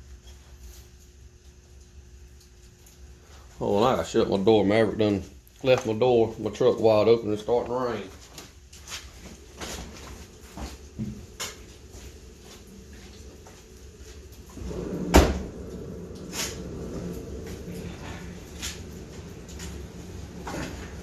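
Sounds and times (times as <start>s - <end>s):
footsteps: 7.6s - 21.0s.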